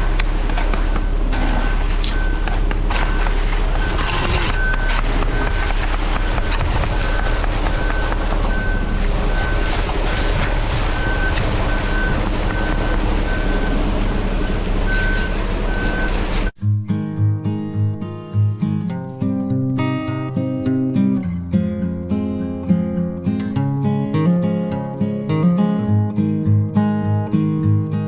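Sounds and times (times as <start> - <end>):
diesel engine rumble: 0.0 - 28.0
backup alarm beeping: 0.8 - 16.6.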